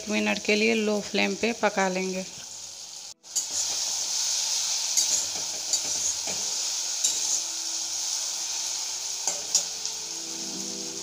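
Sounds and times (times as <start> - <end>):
masala sizzling in a wok: 0.0 - 11.0
steel spatula scraping a pan: 3.3 - 10.4.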